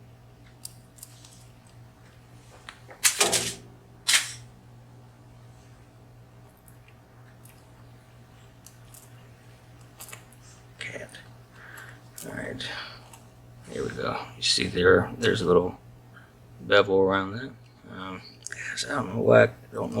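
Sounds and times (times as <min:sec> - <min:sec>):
sharp click: 0:03.0 - 0:04.4.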